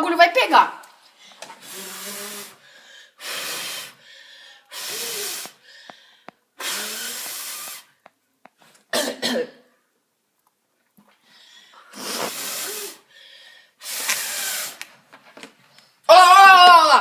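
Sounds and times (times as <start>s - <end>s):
person blowing on embers: 1.5s - 5.7s, 6.6s - 8.0s, 11.8s - 13.1s, 13.8s - 14.9s.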